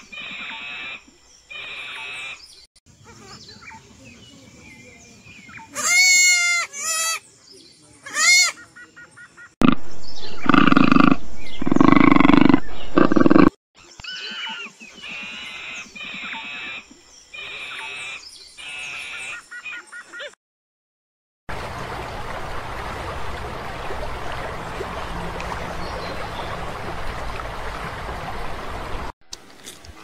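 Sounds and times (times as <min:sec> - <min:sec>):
lambs bleating: 0:05.8 - 0:07.2
animal calls: 0:09.6 - 0:16.8.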